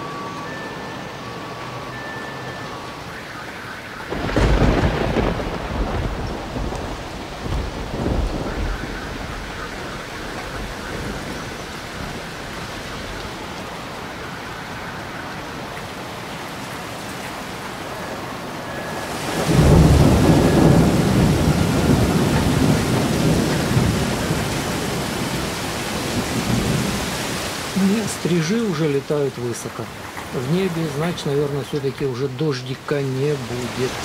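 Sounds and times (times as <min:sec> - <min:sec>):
light rain on pavement: 0:00.0 - 0:34.0
wind gust on microphone: 0:03.8 - 0:14.3, 0:18.6 - 0:28.3.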